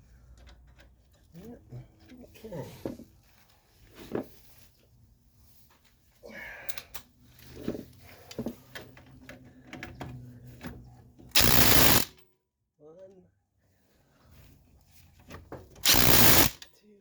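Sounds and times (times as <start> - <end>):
tools clicking and clattering: 8.4 - 12.2, 15.2 - 16.7
loud burst of noise: 11.4 - 12.1, 15.8 - 16.6.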